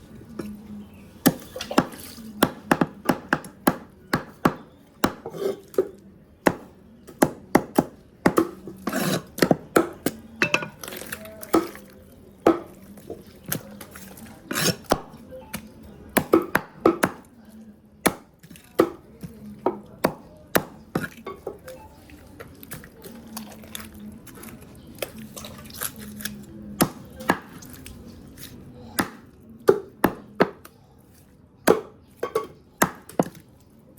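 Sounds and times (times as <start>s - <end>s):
cleaver chopping on cutting board: 1.3s - 5.6s.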